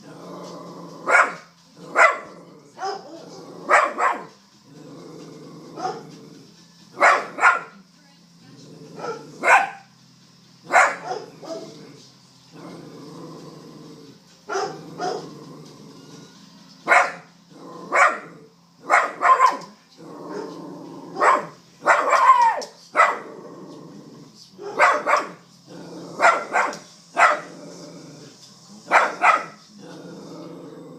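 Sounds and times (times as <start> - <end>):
dog growling: 0.0 - 7.4, 8.4 - 9.7, 10.8 - 16.2, 17.5 - 30.9
dog barking aggressively: 1.0 - 4.3, 7.0 - 7.8, 9.0 - 9.9, 10.7 - 11.7, 14.5 - 15.3, 16.9 - 19.7, 20.3 - 23.4, 24.6 - 25.4, 26.1 - 27.6, 28.9 - 29.6.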